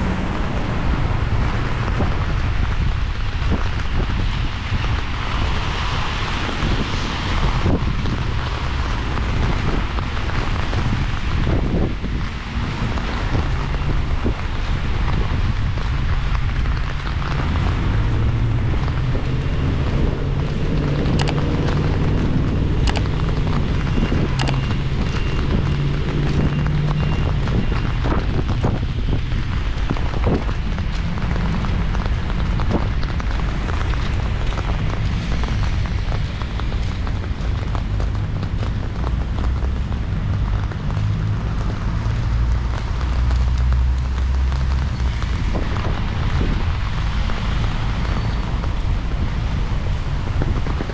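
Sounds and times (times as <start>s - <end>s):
small ticks and taps: 21.2s - 21.5s, 24.4s - 24.6s
hiss of falling rain: 28.2s - 50.9s
wind buffeting microphone: 45.0s - 47.8s.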